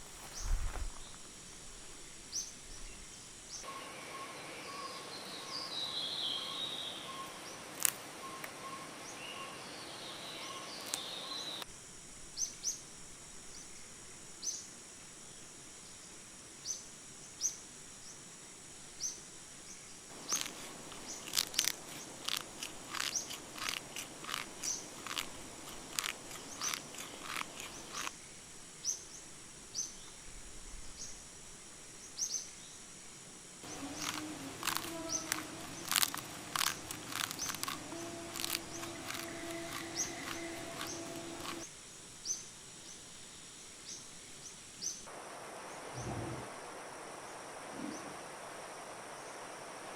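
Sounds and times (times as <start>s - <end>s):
high insect drone: 0.0s - 49.9s
bird warbling: 33.6s - 41.6s.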